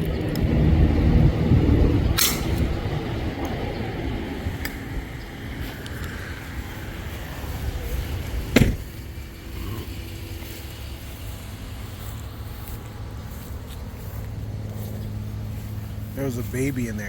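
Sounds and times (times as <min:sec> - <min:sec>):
steady low rumble: 0:00.0 - 0:17.0
air rifle shot: 0:02.2 - 0:02.7.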